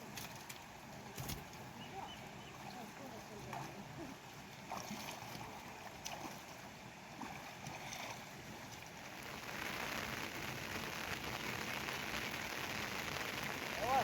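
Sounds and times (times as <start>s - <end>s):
rain falling: 8.9s - 14.0s.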